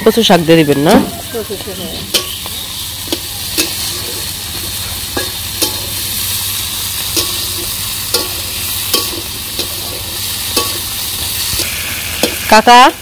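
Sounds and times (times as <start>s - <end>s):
food sizzling in a wok: 0.0s - 13.0s
spatula scraping a metal pan: 0.9s - 12.5s.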